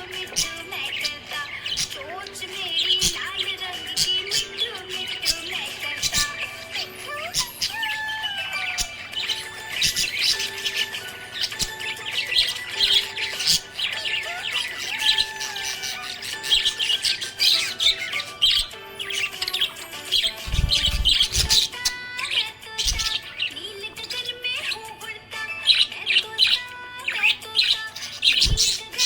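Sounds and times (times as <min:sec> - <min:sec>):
budgerigars chirping and warbling: 0:00.0 - 0:29.0
harsh bird squawk: 0:03.9 - 0:24.8.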